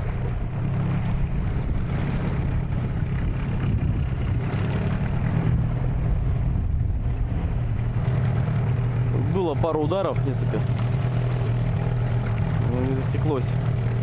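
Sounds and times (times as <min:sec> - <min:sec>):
wind on microphone: 0:00.0 - 0:10.0
outboard motor running: 0:00.0 - 0:14.0
waves: 0:00.0 - 0:14.0.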